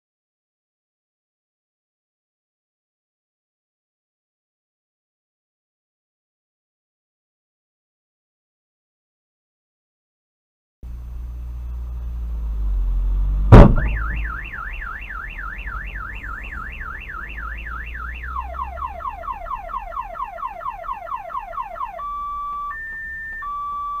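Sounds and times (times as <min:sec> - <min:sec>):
vehicle rumble: 0:10.8 - 0:24.0
loud crash: 0:13.4 - 0:14.5
car alarm: 0:13.5 - 0:24.0.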